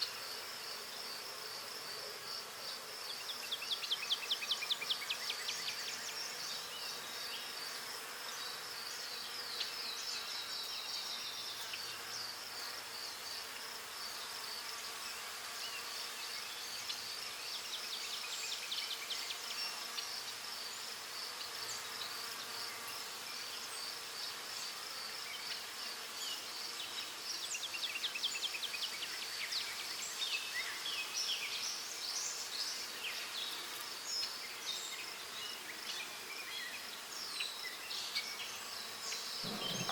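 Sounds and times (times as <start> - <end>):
insects trilling: 0.2 - 39.9.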